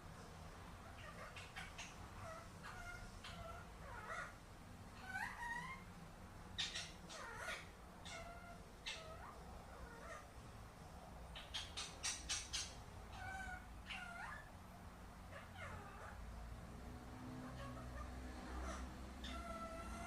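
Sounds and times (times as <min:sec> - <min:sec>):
parakeet calling: 0:00.8 - 0:05.9, 0:06.6 - 0:10.3, 0:11.3 - 0:14.6, 0:15.3 - 0:16.3, 0:17.3 - 0:20.0.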